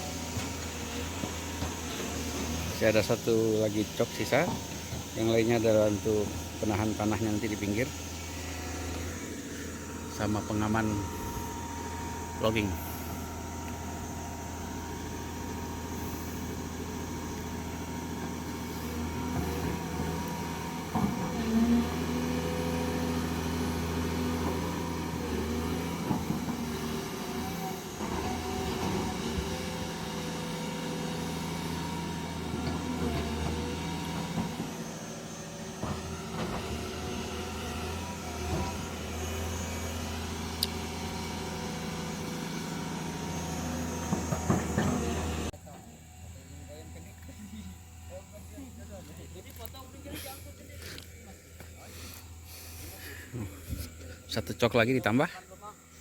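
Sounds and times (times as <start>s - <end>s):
excavator diesel engine running: 0.0s - 55.1s
knocks and clanks: 44.0s - 45.4s.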